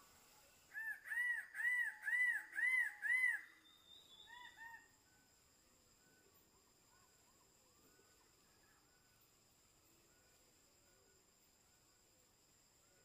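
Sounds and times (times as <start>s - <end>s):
bird calling clear notes: 0.7s - 4.9s.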